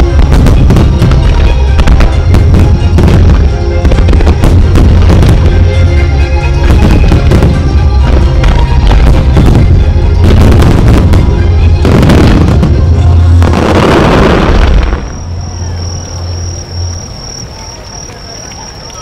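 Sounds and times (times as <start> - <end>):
music over loudspeakers: 0.0 - 14.4
fireworks booming and crackling: 0.0 - 15.6.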